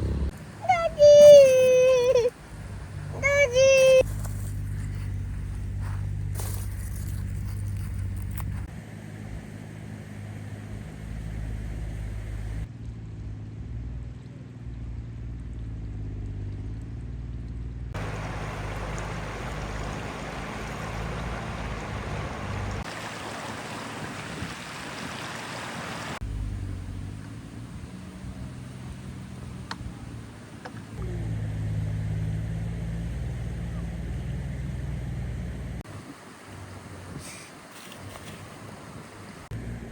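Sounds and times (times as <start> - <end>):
machine engine humming: 0.0 - 0.4, 18.0 - 22.9.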